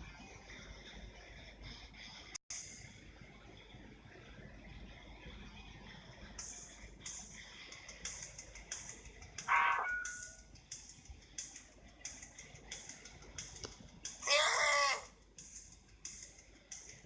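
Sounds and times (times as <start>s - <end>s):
background hiss: 5.4s - 17.0s
short high-pitched cries: 9.5s - 10.3s, 14.2s - 15.1s.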